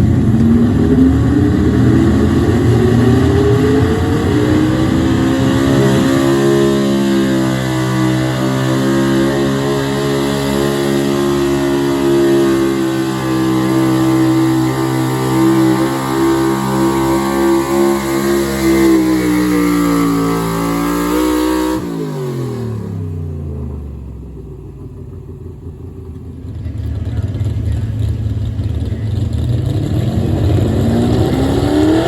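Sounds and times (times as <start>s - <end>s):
truck engine at full throttle: 0.0s - 32.0s.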